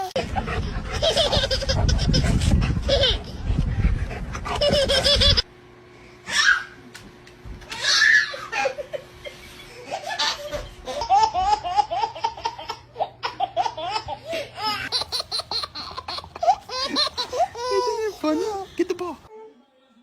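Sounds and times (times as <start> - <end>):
person laughing hard: 4.5 - 5.4, 8.3 - 18.7.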